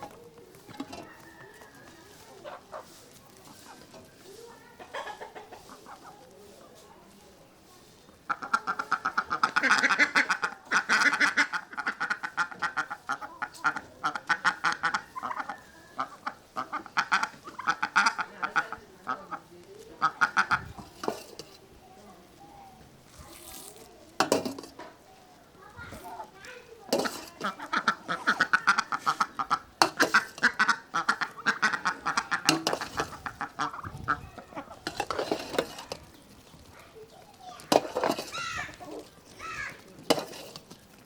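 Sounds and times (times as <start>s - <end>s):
duck quacking: 8.3s - 19.4s, 27.5s - 34.2s.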